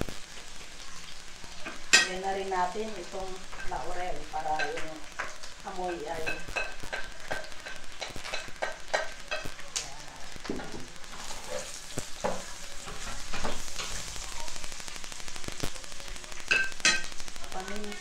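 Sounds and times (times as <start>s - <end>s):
meat sizzling in a pot: 0.0s - 18.0s
spatula tapping plate and pot: 4.6s - 9.5s
wooden spatula scraping: 11.1s - 14.1s.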